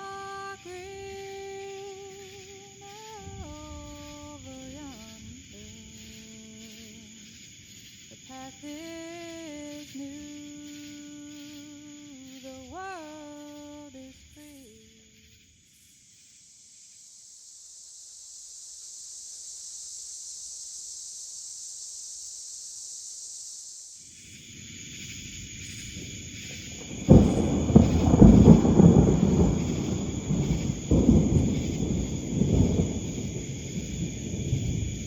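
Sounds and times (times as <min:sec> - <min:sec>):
rain hissing: 0:00.0 - 0:35.0
thunder rolling: 0:25.9 - 0:35.0.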